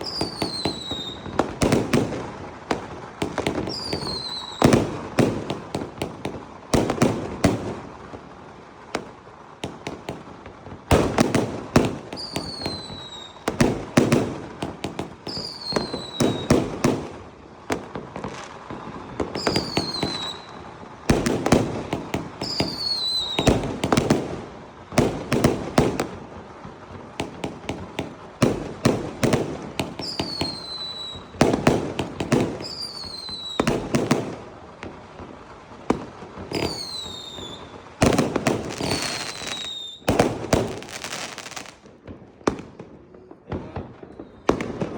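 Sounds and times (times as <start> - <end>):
falling firework whistles: 0.0 - 5.8, 10.9 - 24.2, 28.5 - 34.4, 35.9 - 41.8, 43.1 - 44.9
fireworks bangs and crackles: 0.0 - 44.9.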